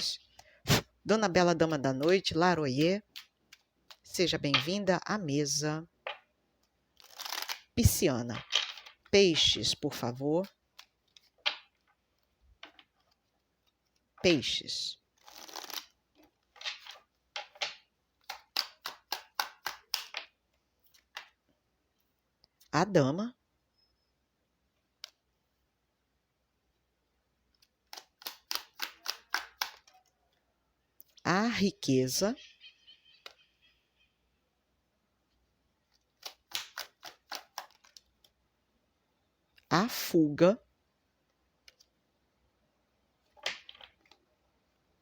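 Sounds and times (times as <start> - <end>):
cards slapping against deck: 16.6 - 20.3, 28.0 - 29.9, 36.2 - 38.0, 43.4 - 44.2.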